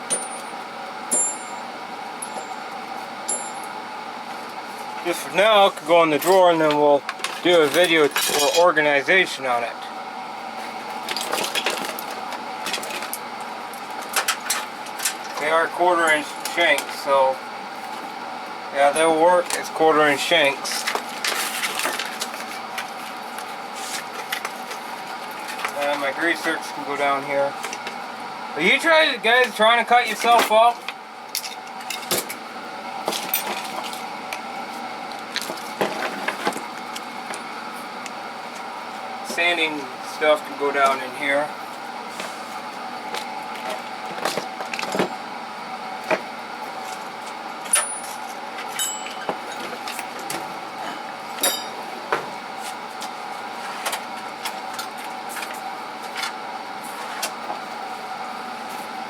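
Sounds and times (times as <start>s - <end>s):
steady background hum: 0.0s - 59.0s
metal tools clinking: 7.2s - 8.7s, 47.7s - 50.0s, 51.4s - 51.8s.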